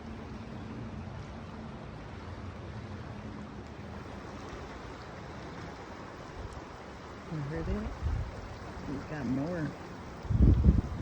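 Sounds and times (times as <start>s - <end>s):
wind buffeting microphone: 7.4s - 11.0s.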